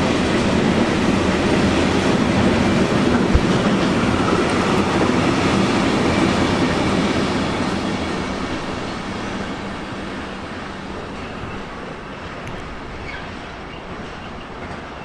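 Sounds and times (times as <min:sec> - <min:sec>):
train passing: 0:00.0 - 0:15.0.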